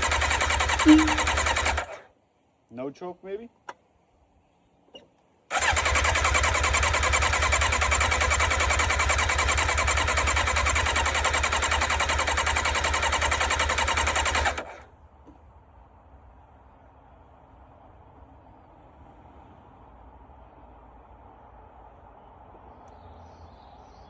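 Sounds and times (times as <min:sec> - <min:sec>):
motorcycle engine cranking: 0:00.0 - 0:02.0, 0:05.5 - 0:14.8.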